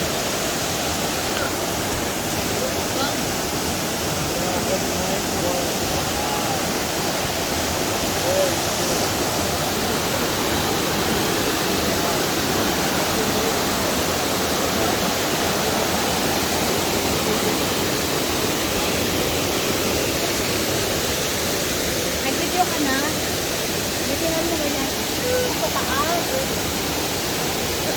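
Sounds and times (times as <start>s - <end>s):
falling water roaring: 0.0s - 27.9s.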